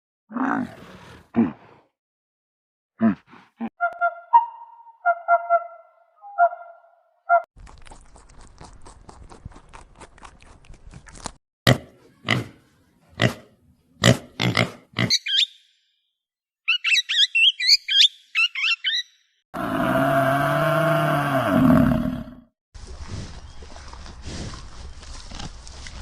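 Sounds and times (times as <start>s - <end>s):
long low animal call: 19.6s - 22.4s.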